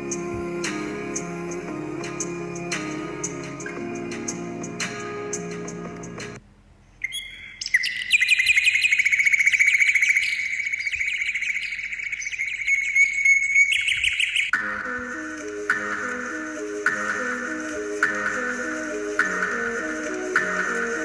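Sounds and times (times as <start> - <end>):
background music: 0.0 - 6.4, 14.5 - 21.0
birds chirping chorus: 7.0 - 14.6.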